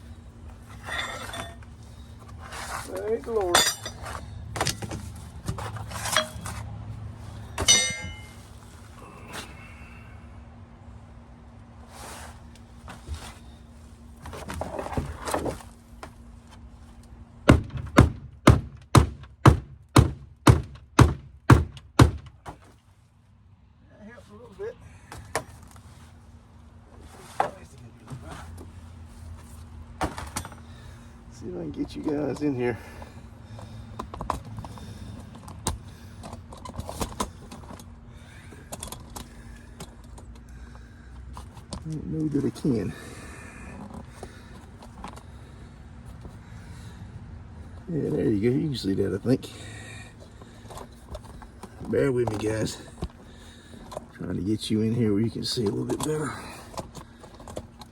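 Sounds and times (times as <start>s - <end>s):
faint steady hum: 0.0s - 57.9s
scraping and handling noise: 0.4s - 9.0s, 11.8s - 16.7s
hammer striking bent metal: 7.6s - 8.4s.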